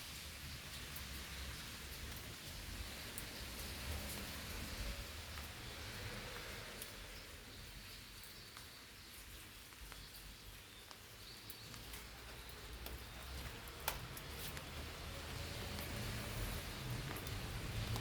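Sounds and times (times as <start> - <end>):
raindrops tapping on leaves: 0.0 - 18.0.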